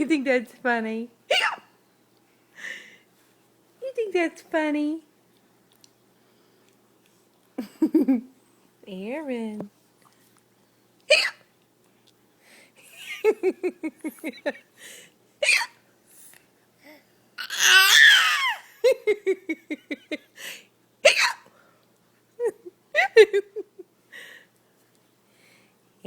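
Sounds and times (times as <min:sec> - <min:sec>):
adult mock hiccup noises: 0:01.3 - 0:01.7.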